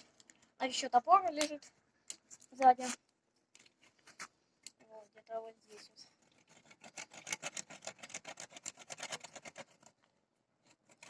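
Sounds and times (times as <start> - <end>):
hand saw cutting branch: 6.4 - 10.0.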